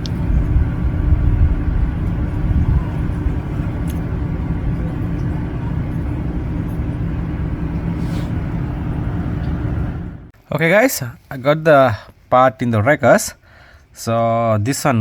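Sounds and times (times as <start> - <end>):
faint hum: 0.0 - 10.4
low mechanical rumble: 0.0 - 10.4.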